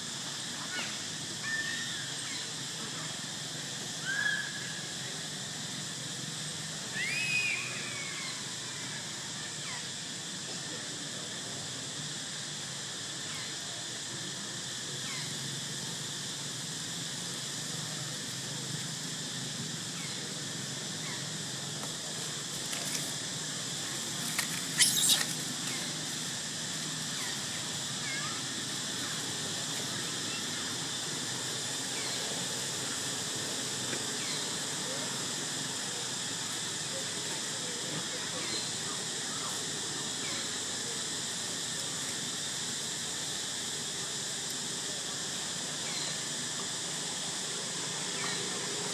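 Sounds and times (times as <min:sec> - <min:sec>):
young monkeys squealing: 0:24.7 - 0:25.8.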